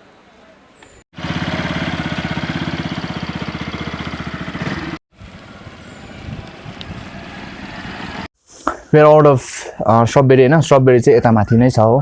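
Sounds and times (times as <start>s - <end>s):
motorcycle engine running: 1.2s - 8.3s.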